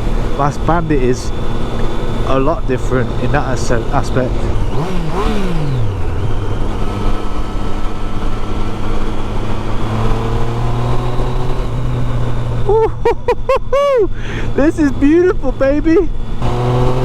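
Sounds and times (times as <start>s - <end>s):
motorcycle engine through loud exhaust: 0.0s - 13.1s, 14.5s - 17.0s.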